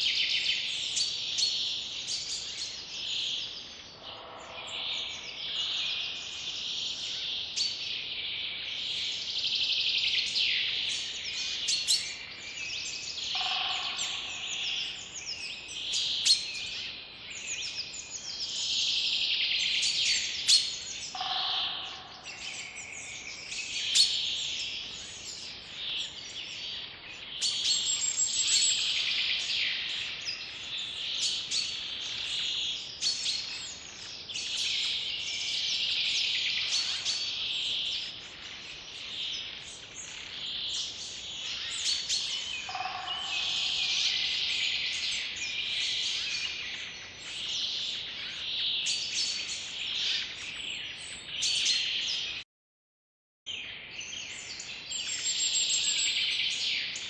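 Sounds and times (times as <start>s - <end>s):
birds chirping in chorus: 0.0s - 52.4s, 53.5s - 57.0s.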